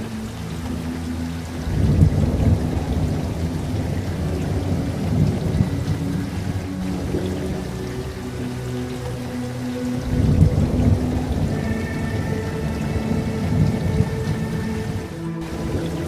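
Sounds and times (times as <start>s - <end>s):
steady rain: 0.0s - 16.0s
rumble of thunder: 1.7s - 7.6s, 10.0s - 12.0s.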